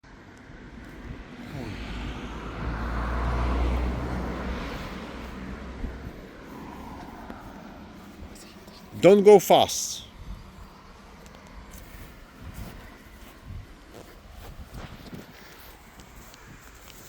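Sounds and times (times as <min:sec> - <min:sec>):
car driving past: 0:00.7 - 0:08.4.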